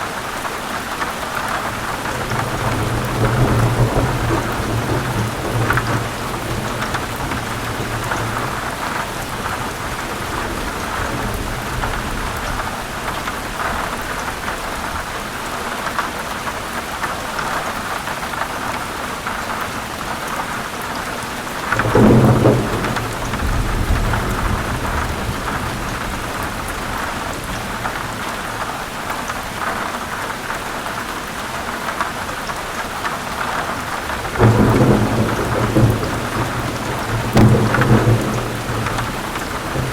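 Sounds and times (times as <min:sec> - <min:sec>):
heavy rain: 0:00.0 - 0:39.9
thunder rumbling: 0:01.6 - 0:15.0, 0:21.6 - 0:28.7, 0:33.4 - 0:39.9.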